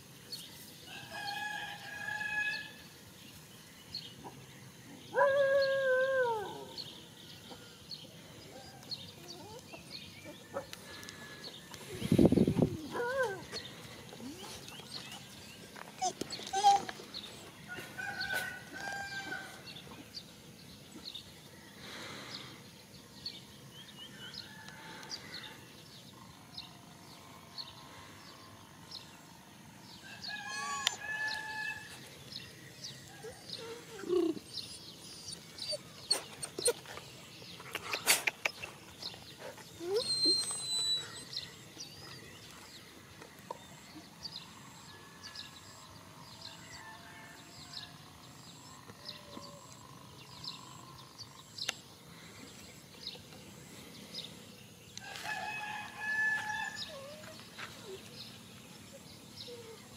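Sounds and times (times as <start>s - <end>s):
small birds chirping: 2.8s - 46.8s, 47.7s - 59.9s
rooster crowing: 17.7s - 19.6s, 30.0s - 32.0s, 46.4s - 47.9s, 55.0s - 57.0s.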